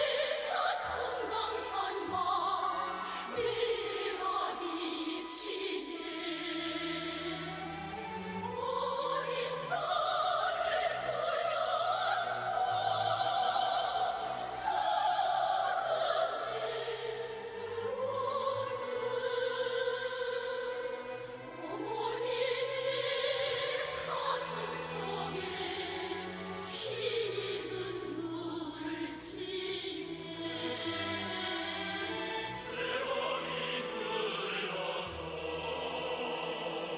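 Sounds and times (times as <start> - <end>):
operatic singing: 0.0 - 36.9
orchestral music: 0.0 - 36.9.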